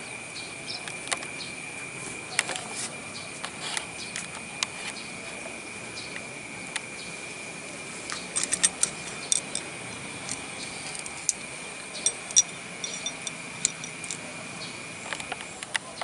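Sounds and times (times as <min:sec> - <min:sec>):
high-pitched whine: 0:00.0 - 0:16.0
small hard parts clicking: 0:08.1 - 0:11.4, 0:12.0 - 0:14.3.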